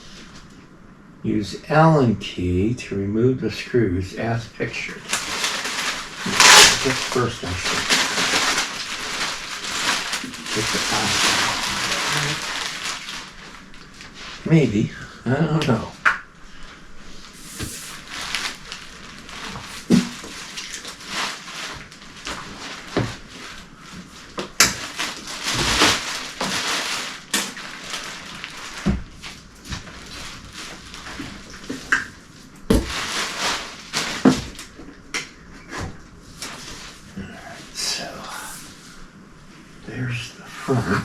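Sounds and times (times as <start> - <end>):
packaging rustling: 4.8 - 14.5, 17.2 - 34.8.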